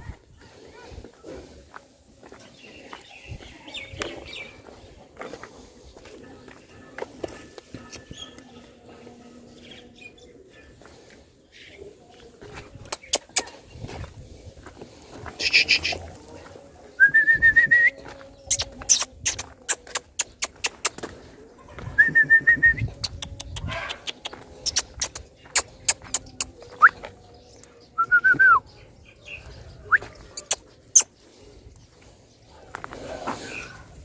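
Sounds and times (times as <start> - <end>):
sharp clicks and taps: 12.9 - 13.5.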